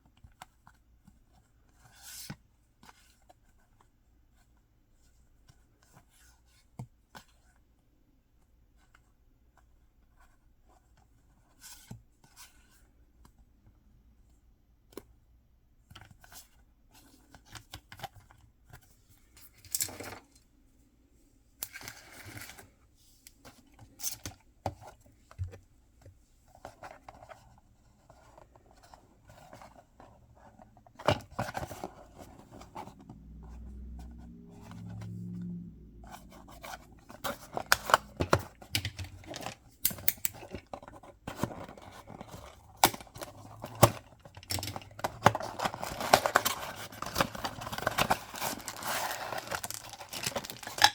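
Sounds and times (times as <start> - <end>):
paper and plastic tearing: 42.8 - 50.9.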